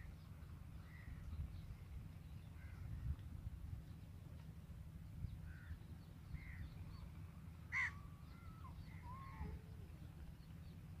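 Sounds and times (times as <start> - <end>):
bird cawing: 7.7 - 9.5.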